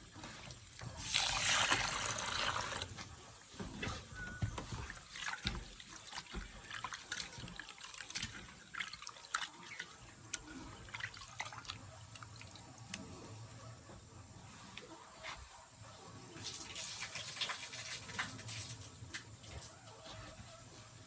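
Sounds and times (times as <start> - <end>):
water splashing and dripping: 0.2 - 3.6, 4.4 - 13.1, 16.4 - 19.8.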